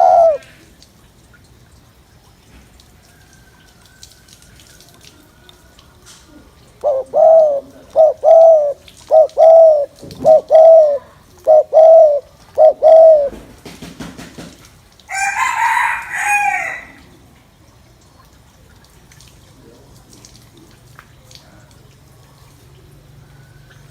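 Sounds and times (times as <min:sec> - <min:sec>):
dove cooing: 0:00.0 - 0:00.7, 0:06.2 - 0:13.6.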